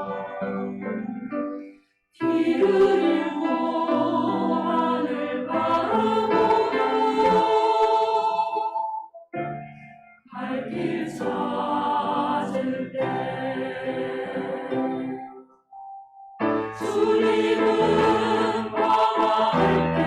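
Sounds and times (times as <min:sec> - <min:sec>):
church choir singing: 0:00.0 - 0:15.5, 0:16.4 - 0:20.0.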